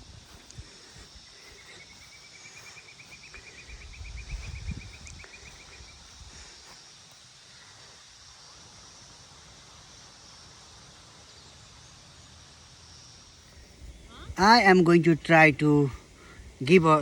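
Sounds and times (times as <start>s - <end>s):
low rumble on microphone: 3.4s - 6.5s.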